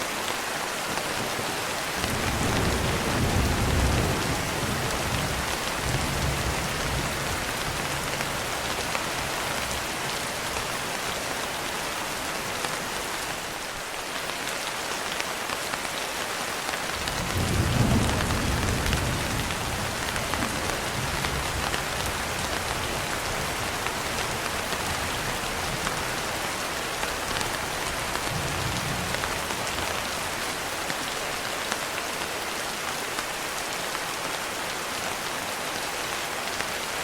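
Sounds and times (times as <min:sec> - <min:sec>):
heavy rain hissing: 0:00.0 - 0:37.0
thunder rumbling: 0:02.0 - 0:09.6, 0:17.0 - 0:26.1.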